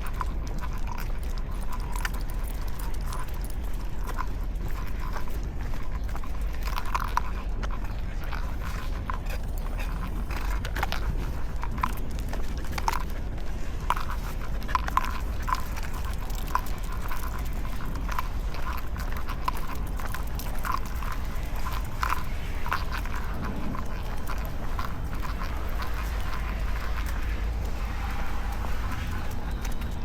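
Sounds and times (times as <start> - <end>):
footsteps on pavement: 0.0 - 30.0
low rumble: 7.5 - 30.0.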